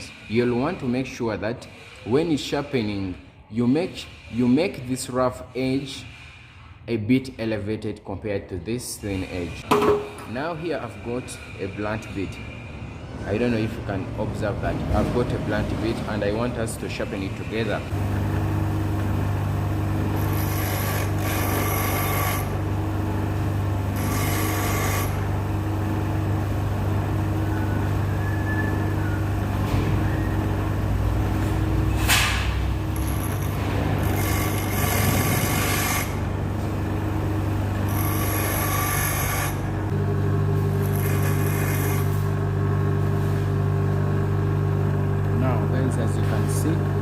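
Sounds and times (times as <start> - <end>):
electric grinder motor running: 19.7 - 26.4, 32.8 - 43.0
drill bit grinding on wheel: 20.0 - 22.8, 23.8 - 25.5, 32.9 - 36.3, 37.7 - 39.8, 40.8 - 42.3.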